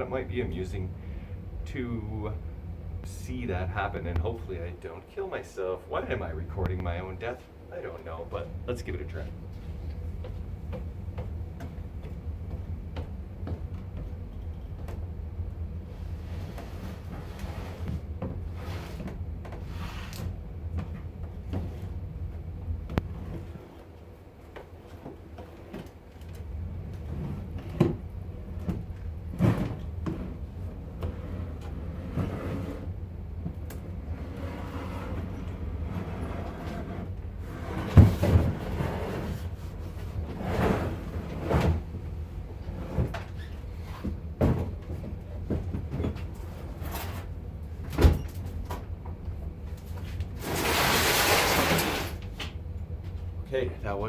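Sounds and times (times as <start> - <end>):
steady low rumble: 0.0 - 19.5.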